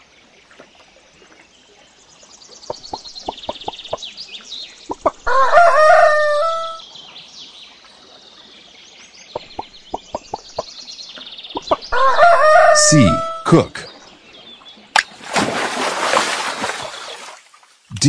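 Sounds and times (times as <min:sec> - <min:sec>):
small birds chirping: 0:00.0 - 0:15.0
rooster crowing: 0:05.2 - 0:06.8, 0:11.9 - 0:13.4
chicken clucking: 0:09.4 - 0:10.4.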